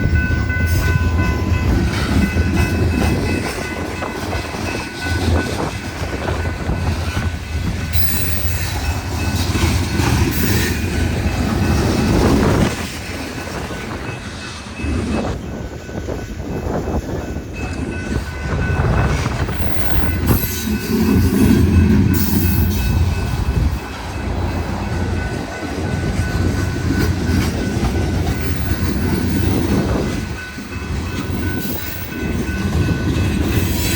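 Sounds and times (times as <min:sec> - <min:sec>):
freight train wheels clattering: 0:00.0 - 0:33.9.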